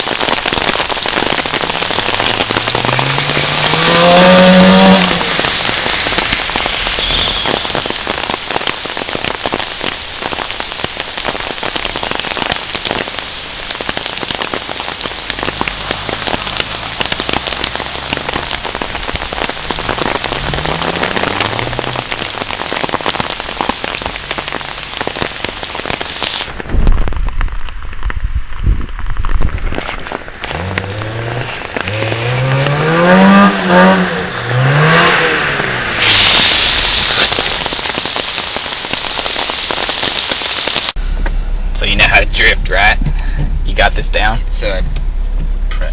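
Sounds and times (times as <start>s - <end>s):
rain pattering on microphone: 0.0s - 45.9s
car engine revving: 0.6s - 9.6s, 11.1s - 26.0s, 30.4s - 38.7s, 41.0s - 45.9s
muffled low rumble: 26.4s - 32.9s, 40.8s - 45.9s.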